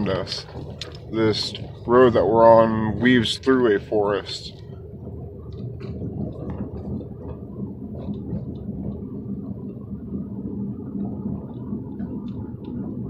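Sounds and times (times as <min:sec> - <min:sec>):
car tyres and engine rumbling: 0:00.0 - 0:13.0
faint steady hum: 0:00.0 - 0:13.0
light ticks: 0:00.1 - 0:01.9.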